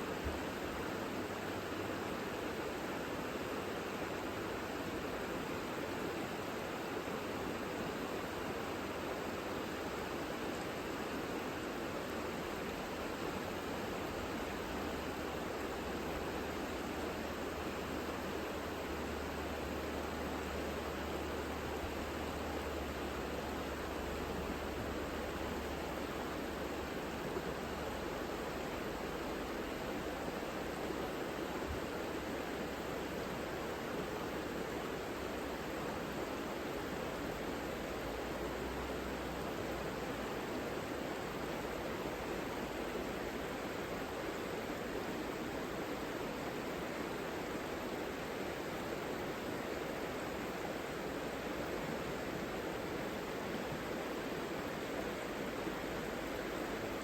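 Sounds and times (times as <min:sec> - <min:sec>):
river water rushing: 0:28.2 - 0:57.0.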